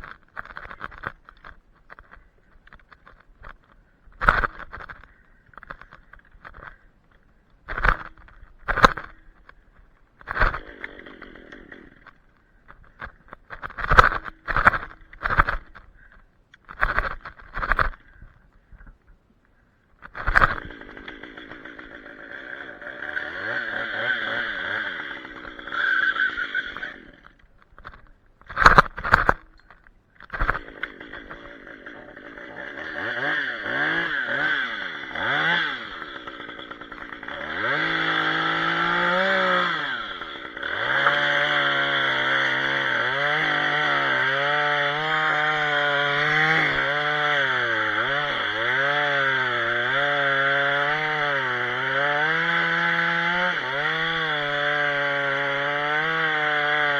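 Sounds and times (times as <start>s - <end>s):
chainsaw revving and cutting: 7.7s - 9.5s, 10.2s - 12.2s, 20.0s - 29.4s, 30.2s - 56.9s.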